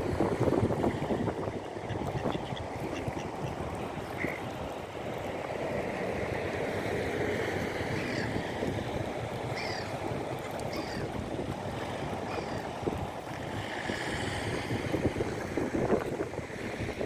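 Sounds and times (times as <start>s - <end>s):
birds calling: 9.5s - 10.0s, 10.7s - 11.1s.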